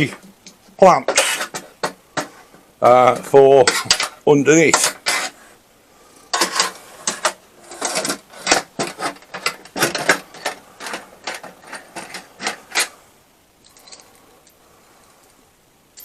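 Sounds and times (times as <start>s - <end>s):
metal clamps clicking and clattering: 3.1s - 5.4s, 6.3s - 12.9s.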